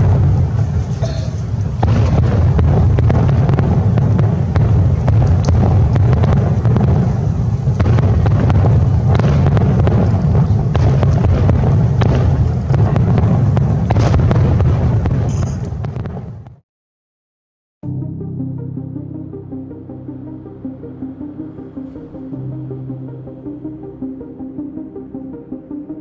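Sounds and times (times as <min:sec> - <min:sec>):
fireworks bangs and crackles: 0:00.0 - 0:16.6
fireworks booming: 0:00.0 - 0:16.6.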